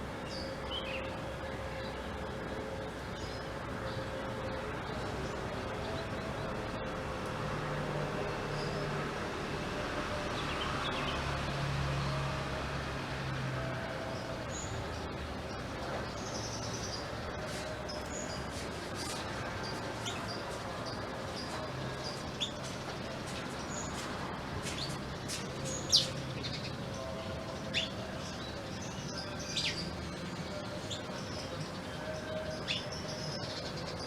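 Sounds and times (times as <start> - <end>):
canary chirping: 24.6 - 26.8.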